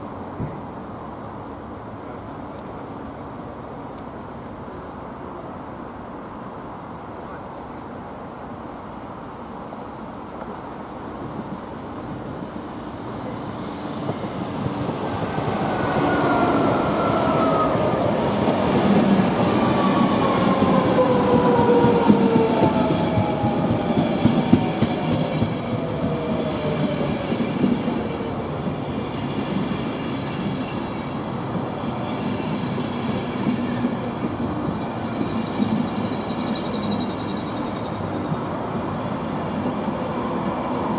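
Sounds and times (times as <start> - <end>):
train wheels rumbling on track: 10.2 - 40.9.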